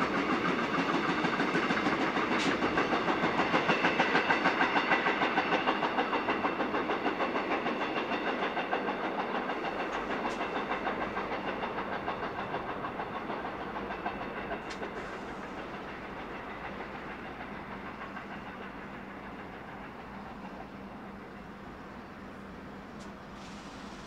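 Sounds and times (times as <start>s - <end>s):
freight train wheels clacking: 0.0s - 24.0s.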